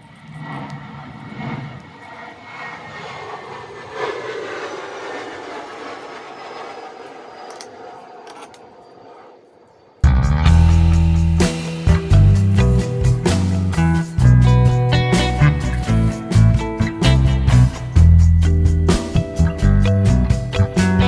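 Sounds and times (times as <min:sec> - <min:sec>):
loud music: 0:10.0 - 0:21.0.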